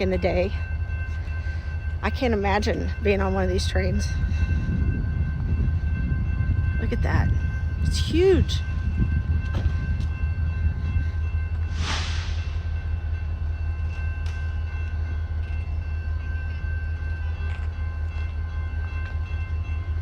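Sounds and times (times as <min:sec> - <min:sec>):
brief hiss: 0:11.8 - 0:12.7.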